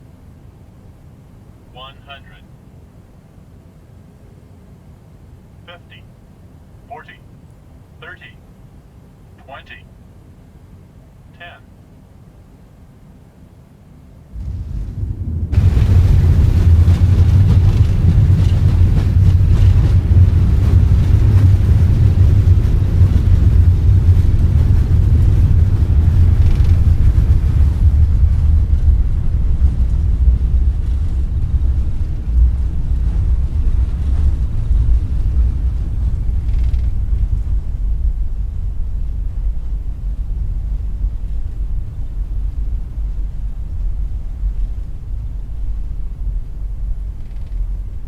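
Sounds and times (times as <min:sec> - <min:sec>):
jet engines roaring in reverse thrust: 0:14.2 - 0:48.0
wheels on runway: 0:14.2 - 0:48.0.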